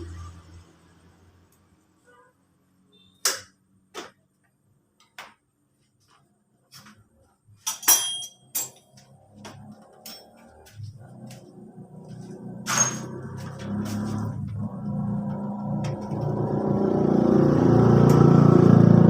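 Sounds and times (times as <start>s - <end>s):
metal tools clinking and knocking: 7.6s - 9.1s, 9.8s - 10.5s, 12.7s - 13.3s.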